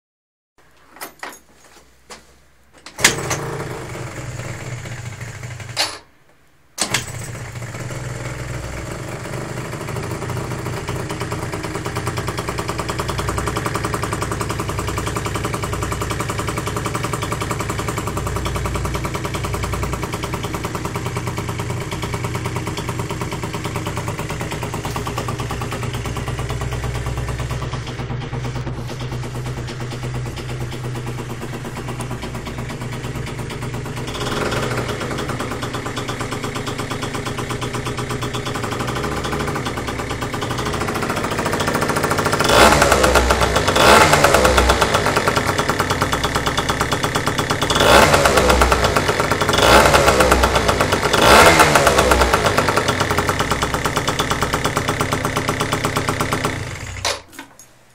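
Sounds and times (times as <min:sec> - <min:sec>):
scooter engine starting and idling: 0:02.9 - 0:06.0, 0:06.8 - 0:57.8.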